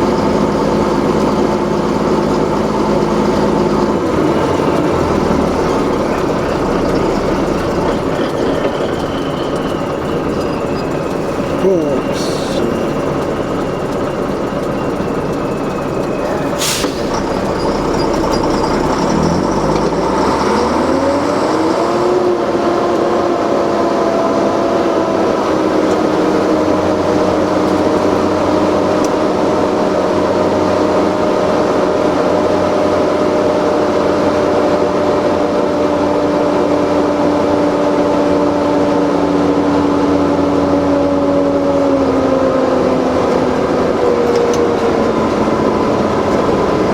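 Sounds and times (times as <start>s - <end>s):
truck engine revving: 0.0s - 46.9s.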